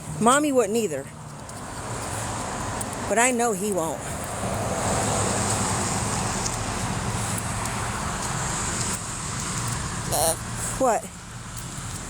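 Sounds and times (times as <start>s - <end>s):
traffic rushing: 0.0s - 12.0s.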